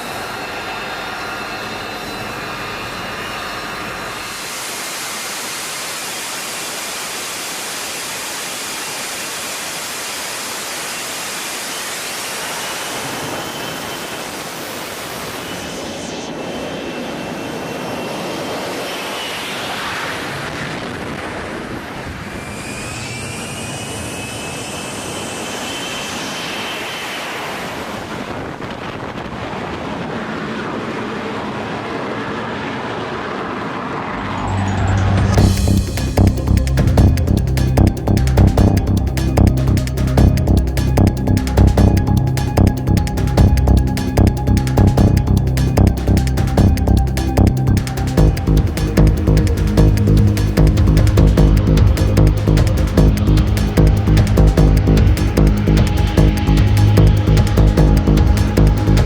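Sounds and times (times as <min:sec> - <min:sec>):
helicopter rotor and engine noise: 0:00.0 - 0:59.0
turbine engine whine: 0:00.0 - 0:59.0.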